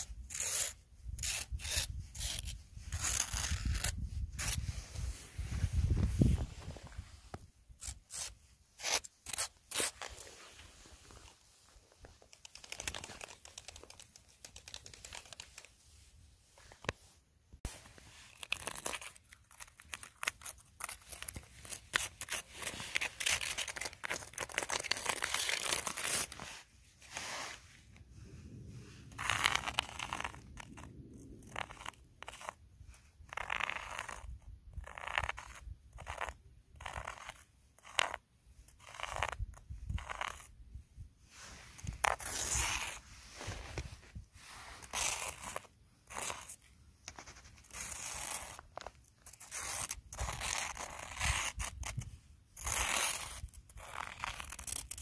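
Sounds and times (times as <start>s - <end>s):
footsteps crunching in snow: 4.4s - 7.4s, 42.2s - 45.4s.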